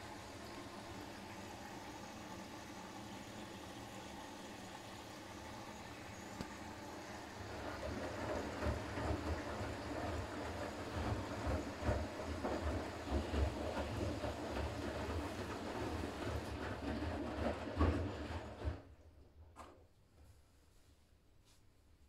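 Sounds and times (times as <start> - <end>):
washing machine hum: 0.0 - 21.0
washing machine drum thumping: 7.6 - 18.9.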